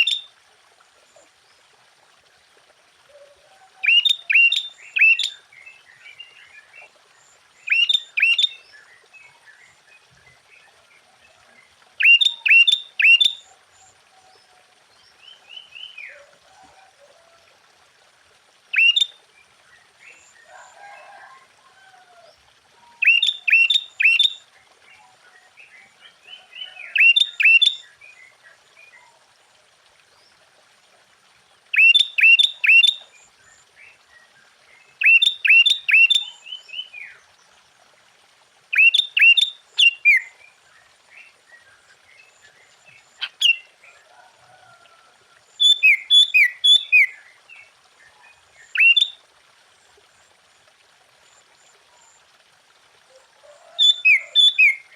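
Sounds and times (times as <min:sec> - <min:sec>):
bulbul singing: 0:03.8 - 0:05.4, 0:07.6 - 0:08.6, 0:12.0 - 0:13.4, 0:18.8 - 0:19.1, 0:23.0 - 0:24.4, 0:31.8 - 0:33.0.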